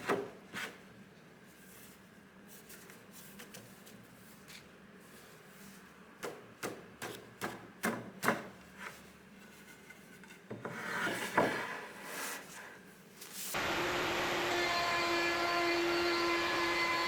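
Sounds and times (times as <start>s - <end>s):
hand tool scraping wood: 8.8s - 12.7s.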